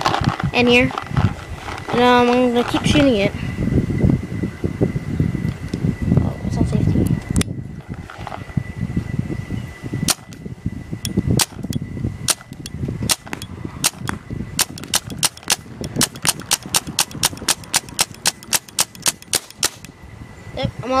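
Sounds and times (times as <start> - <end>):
paintball marker firing: 10.1 - 10.3, 12.3 - 19.9.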